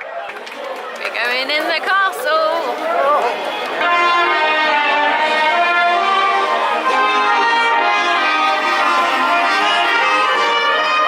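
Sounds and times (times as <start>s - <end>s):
brass band playing: 2.3s - 11.0s.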